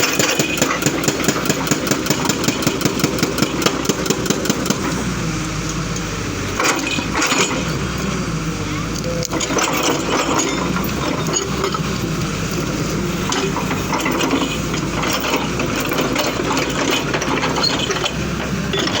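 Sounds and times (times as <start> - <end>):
clatter and clanking: 0.0 - 5.0, 6.0 - 7.8, 9.0 - 19.0
excavator engine running: 0.0 - 19.0.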